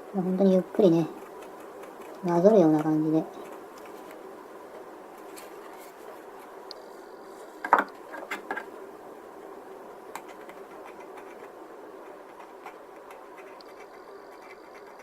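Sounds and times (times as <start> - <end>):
scriber scraping plastic: 1.2 - 4.3, 5.2 - 6.5, 10.1 - 15.0.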